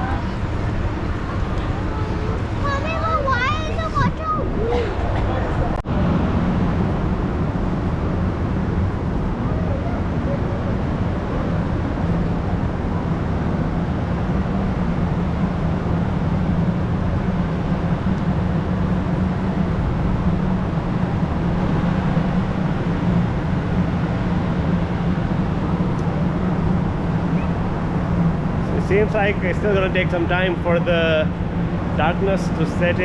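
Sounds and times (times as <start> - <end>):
continuous wash of noise: 0.0 - 33.0
steady low hum: 0.0 - 33.0.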